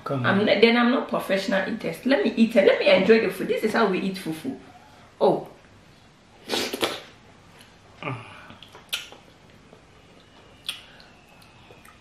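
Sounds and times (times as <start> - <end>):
wet lip-smacks and chewing: 8.5 - 12.0.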